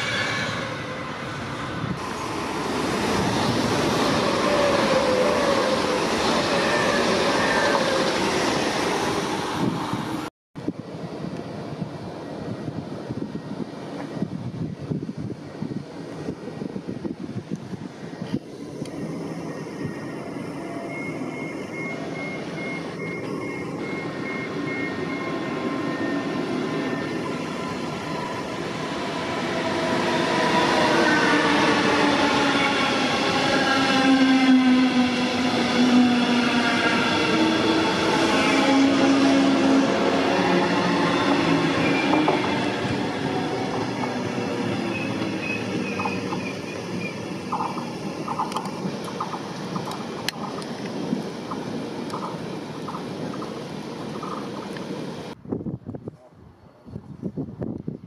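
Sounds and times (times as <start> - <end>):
train wheel noise: 0.0 - 55.4
train drive whining: 0.0 - 56.0.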